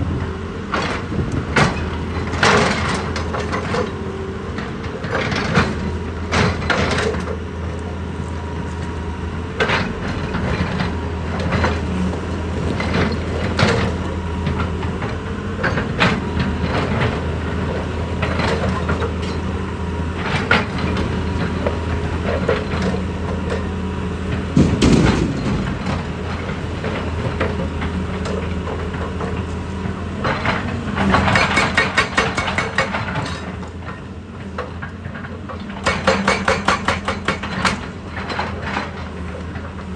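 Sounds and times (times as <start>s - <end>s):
heavy machine engine running: 0.0s - 39.9s
sharp knocks of rock or metal: 24.5s - 26.3s.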